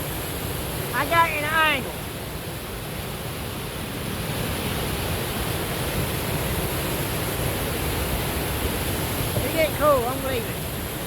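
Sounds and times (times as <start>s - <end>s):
waterfall and creek rushing: 0.0s - 11.0s.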